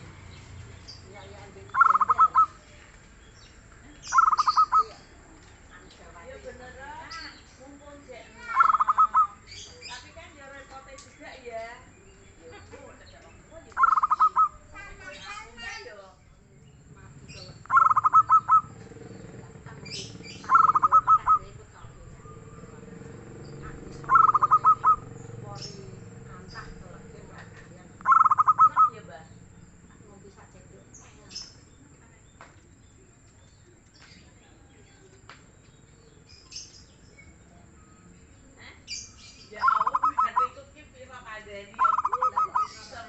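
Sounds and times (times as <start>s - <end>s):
high bird chirps: 0.0s - 43.0s
dove cooing: 1.1s - 2.8s, 4.0s - 5.3s, 8.0s - 10.3s, 12.0s - 15.7s, 16.7s - 31.5s, 38.9s - 43.0s.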